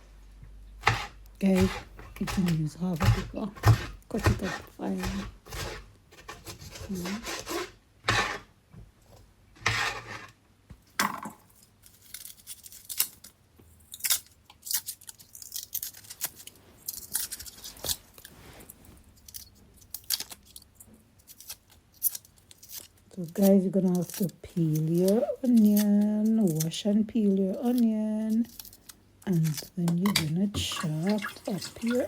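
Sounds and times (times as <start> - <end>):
knife cutting pepper on board: 0.8 - 8.4.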